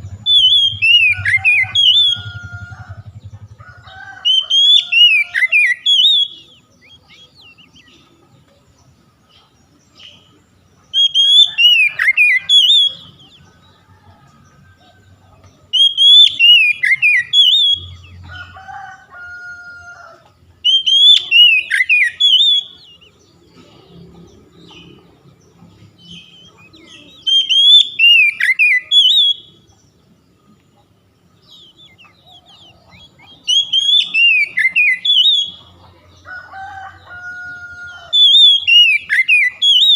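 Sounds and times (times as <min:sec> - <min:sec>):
bird whistled song: 0:00.0 - 0:03.6, 0:04.2 - 0:08.1, 0:10.0 - 0:13.6, 0:15.7 - 0:18.3, 0:20.6 - 0:23.4, 0:26.0 - 0:29.8, 0:31.4 - 0:35.8, 0:37.8 - 0:39.9
lower two-part bird call: 0:00.0 - 0:03.6, 0:04.2 - 0:07.3, 0:10.9 - 0:13.3, 0:20.6 - 0:23.0, 0:26.2 - 0:29.6, 0:31.6 - 0:35.6.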